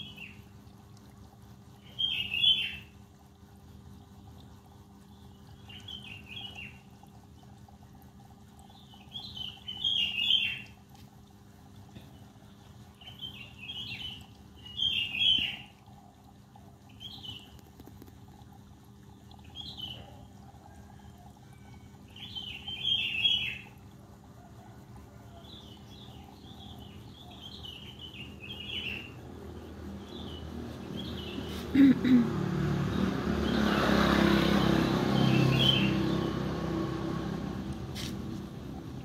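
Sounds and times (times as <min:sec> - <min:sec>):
small birds chirping: 0:01.6 - 0:07.8, 0:08.6 - 0:11.2, 0:11.8 - 0:20.8, 0:22.1 - 0:23.8, 0:25.3 - 0:32.2.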